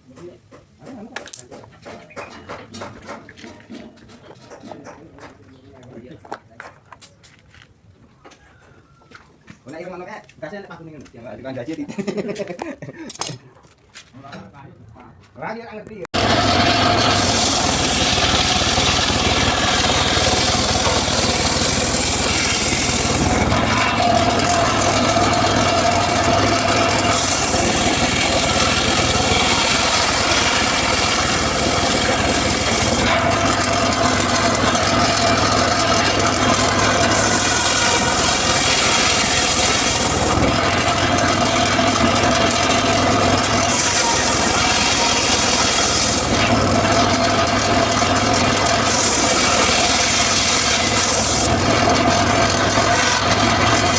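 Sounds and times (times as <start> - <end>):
circular saw cutting wood: 16.2 - 53.9.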